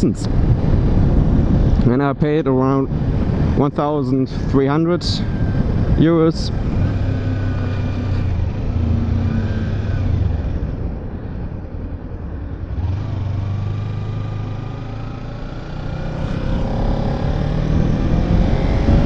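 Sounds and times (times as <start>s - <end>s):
road and wind rumble: 0.0s - 19.0s.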